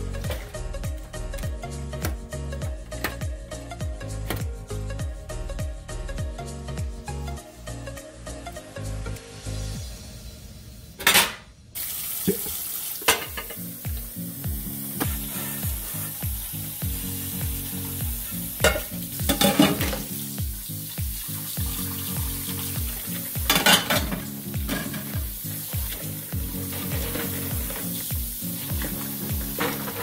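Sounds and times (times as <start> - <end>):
low steady musical beat: 0.0 - 7.4, 13.1 - 30.0
tap water running into sink: 11.8 - 30.0
dishes clattering: 13.0 - 13.6, 18.6 - 20.1, 23.5 - 25.3.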